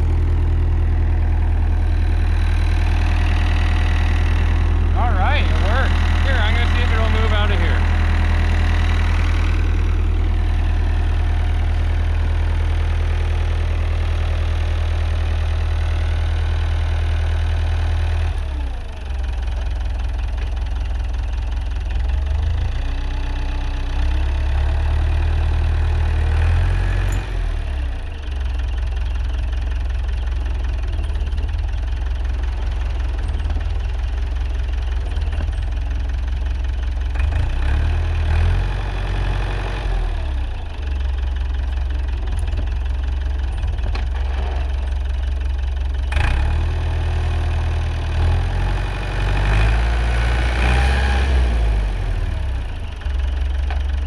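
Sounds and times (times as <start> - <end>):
engine drone: 0.0 - 16.2, 48.1 - 54.0.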